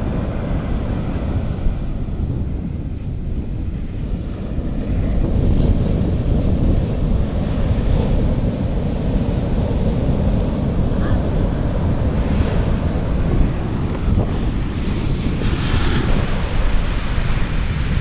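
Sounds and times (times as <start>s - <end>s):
sea waves washing on beach: 0.0s - 18.0s
wind on microphone: 0.0s - 18.0s.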